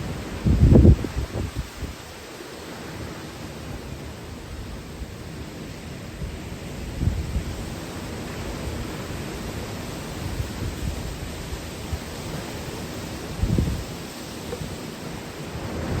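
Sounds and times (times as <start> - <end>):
strong wind roaring: 0.0 - 2.2, 6.1 - 16.0
wind gusts buffeting microphone: 0.0 - 16.0.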